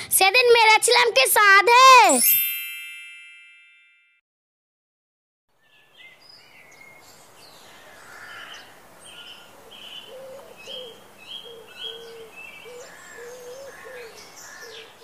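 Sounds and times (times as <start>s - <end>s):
birds high chirps: 5.6s - 15.0s.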